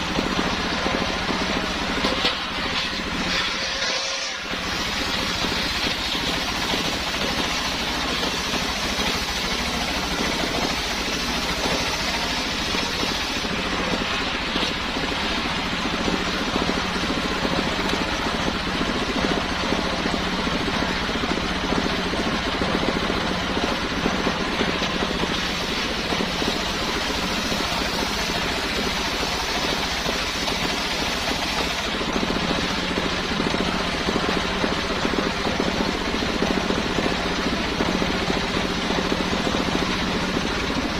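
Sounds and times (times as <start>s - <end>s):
circular saw motor droning: 0.0s - 20.5s.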